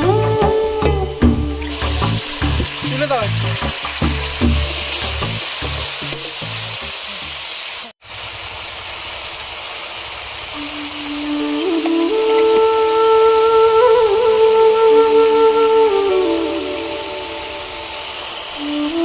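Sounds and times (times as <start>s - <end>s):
oil sizzling in wok: 0.0s - 19.0s
mixture bubbling in pan: 1.8s - 11.0s.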